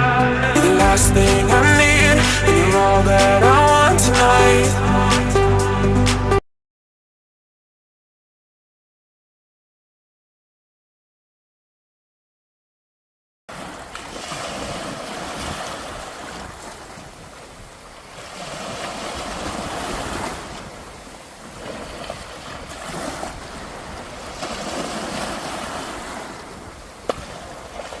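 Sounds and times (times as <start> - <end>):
sea waves breaking on beach: 13.5 - 28.0
wind on microphone: 14.3 - 28.0.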